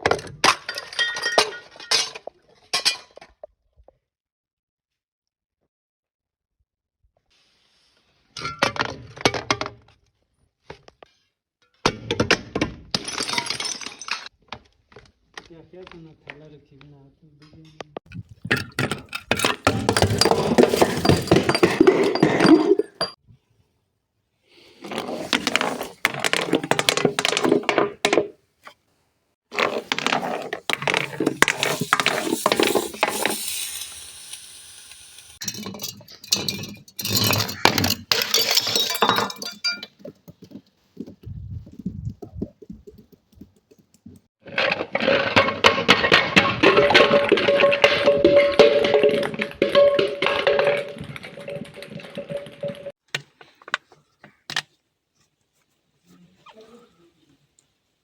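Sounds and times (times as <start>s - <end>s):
glass being crushed and broken: 35.4s - 39.9s.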